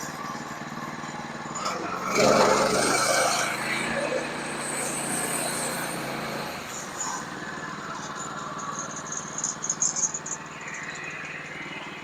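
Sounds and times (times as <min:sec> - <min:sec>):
sawmill engine running: 0:00.0 - 0:12.0
sharp high-pitched scraping: 0:02.0 - 0:06.8.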